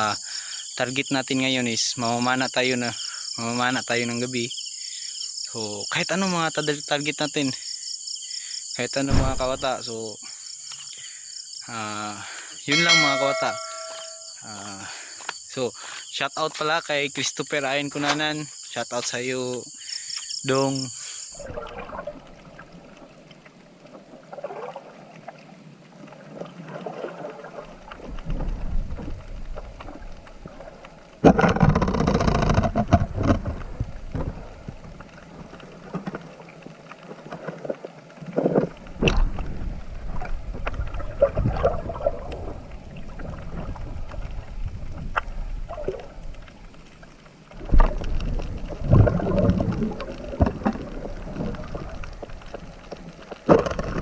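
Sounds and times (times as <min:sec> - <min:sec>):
muffled water splashing: 0:09.0 - 0:09.8, 0:12.7 - 0:14.4, 0:21.4 - 0:54.0.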